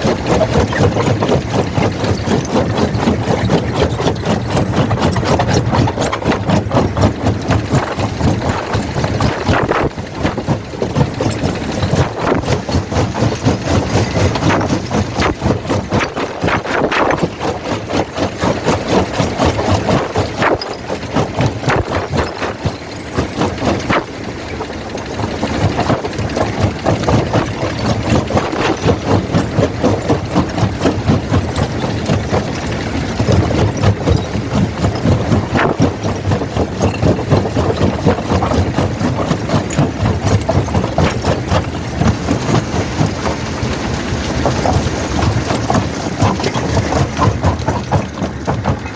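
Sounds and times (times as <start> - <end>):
jaw crusher churning: 0.0 - 48.9.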